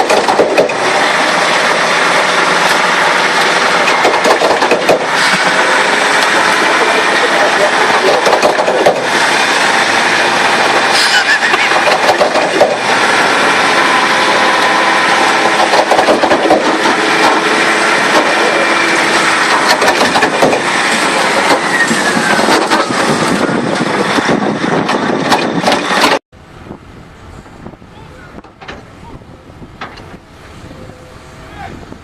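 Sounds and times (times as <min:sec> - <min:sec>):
knocks and clatters: 0:00.0 - 0:00.9, 0:03.4 - 0:09.2, 0:10.6 - 0:13.0, 0:15.3 - 0:26.2
heavy vehicle engine running: 0:00.0 - 0:32.0.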